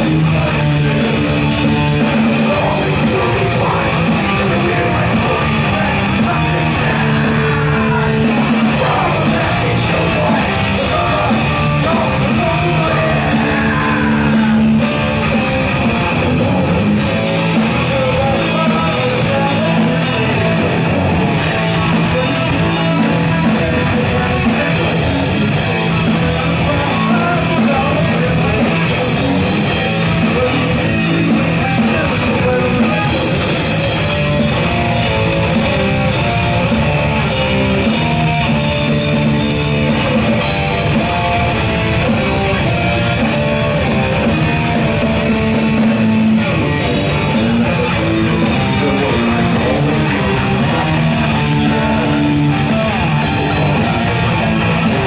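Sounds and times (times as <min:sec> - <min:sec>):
heavy metal band playing: 0:00.0 - 0:55.0
shouted vocals: 0:02.4 - 0:15.2.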